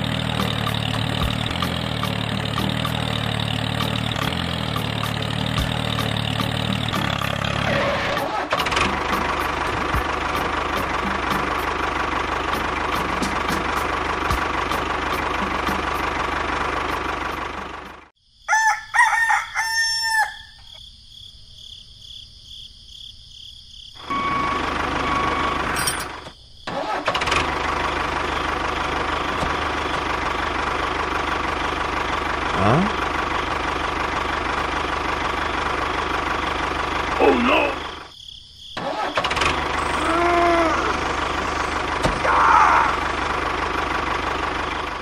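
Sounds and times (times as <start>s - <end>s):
rooster crowing: 18.4s - 20.7s.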